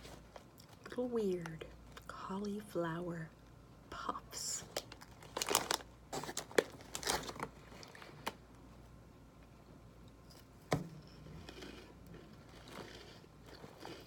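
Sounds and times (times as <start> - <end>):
crunchy snacks being chewed: 11.4 - 14.0.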